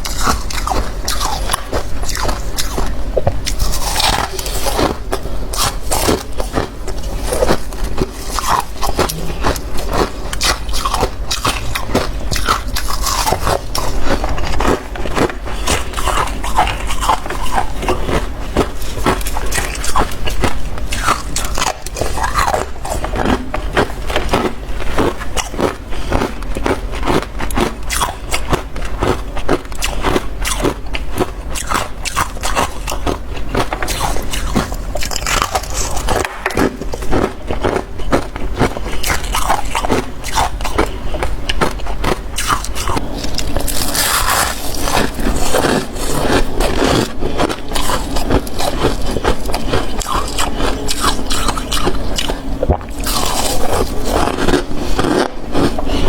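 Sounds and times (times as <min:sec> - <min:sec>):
chewing crunchy frost: 0:00.0 - 0:56.0.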